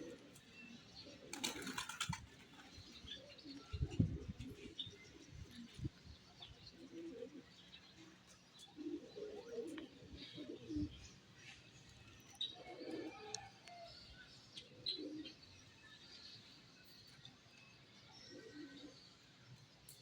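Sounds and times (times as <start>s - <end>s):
pigeons cooing: 0.0s - 11.2s, 12.5s - 13.5s, 14.6s - 15.4s, 18.3s - 19.0s.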